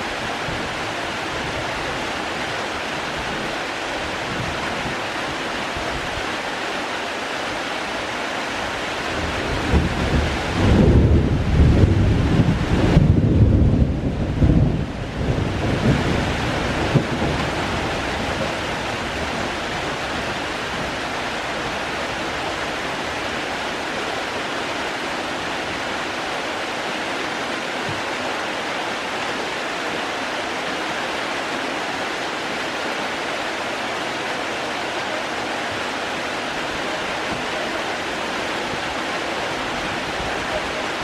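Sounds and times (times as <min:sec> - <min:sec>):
steady rain falling: 0:00.0 - 0:41.0
wind buffeting microphone: 0:08.9 - 0:26.1.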